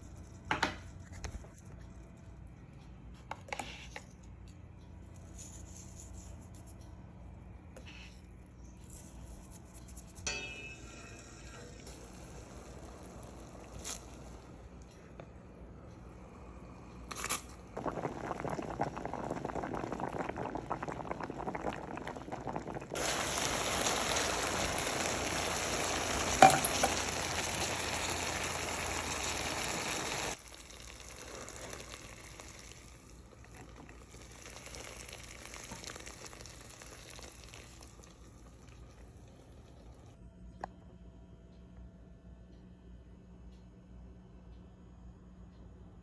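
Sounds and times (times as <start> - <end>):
liquid bubbling and sizzling in a pan: 9.4 - 14.8, 16.1 - 40.2
sharp clink: 10.2 - 11.7.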